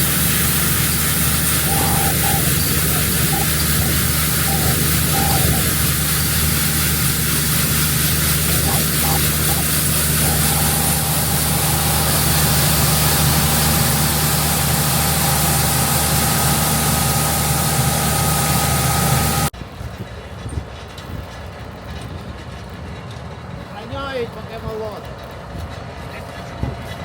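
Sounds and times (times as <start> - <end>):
higher mechanical whine: 0.0 - 19.5
thin mechanical whine: 0.0 - 19.5
combine harvester running: 0.0 - 27.0.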